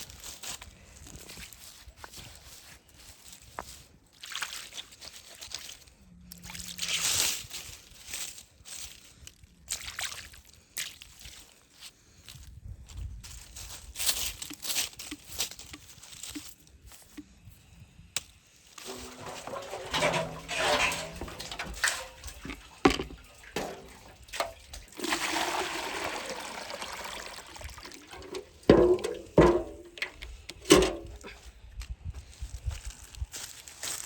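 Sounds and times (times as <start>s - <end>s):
water pouring and splashing: 4.1s - 5.8s, 9.7s - 11.6s, 18.8s - 31.4s.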